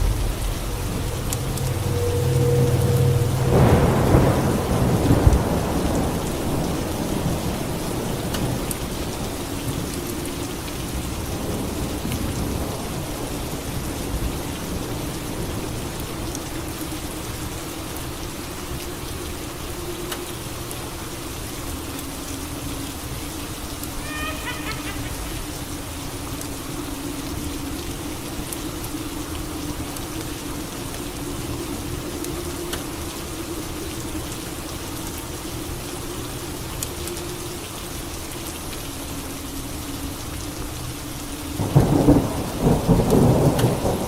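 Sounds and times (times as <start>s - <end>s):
thunder rumbling: 0.0s - 18.0s, 23.5s - 28.6s, 41.6s - 44.0s
steady rain falling: 0.0s - 44.0s.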